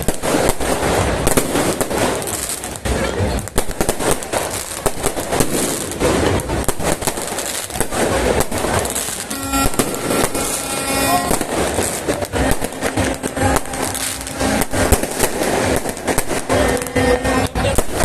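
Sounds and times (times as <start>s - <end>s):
fireworks bangs and crackles: 0.0s - 18.0s
steady horn-like tone: 9.1s - 15.7s.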